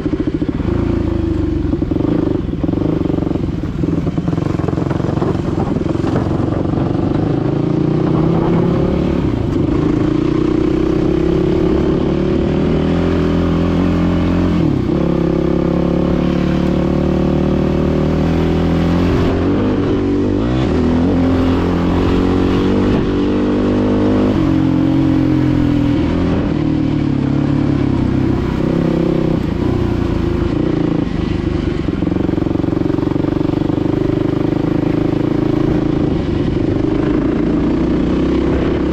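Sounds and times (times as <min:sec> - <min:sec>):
dirt bike engine running: 0:00.0 - 0:38.9.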